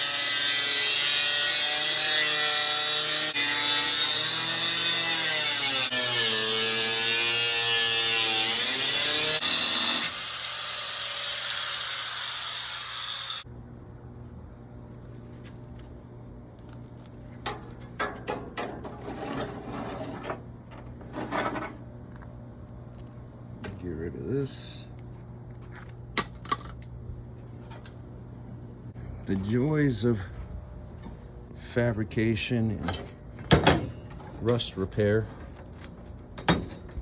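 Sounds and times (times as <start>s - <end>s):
power cutting tool cutting metal: 0.0s - 13.4s.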